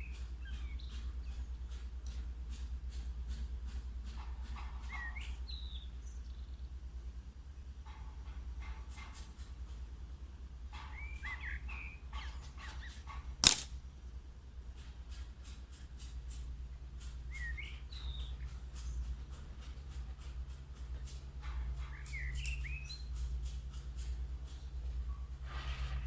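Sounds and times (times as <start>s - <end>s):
small birds chirping: 0.0s - 7.9s, 10.7s - 25.4s
low steady rumble: 0.0s - 25.5s
air rifle shot: 13.4s - 13.8s.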